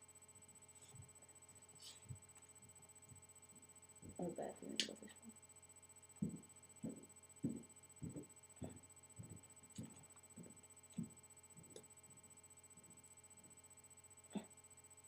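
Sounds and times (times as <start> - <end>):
soft low thumps and knocks: 6.2 - 11.8.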